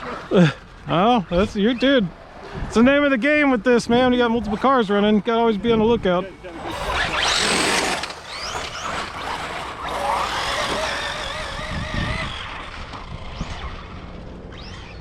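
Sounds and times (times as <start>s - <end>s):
electric toy car motors whining: 6.4s - 15.0s.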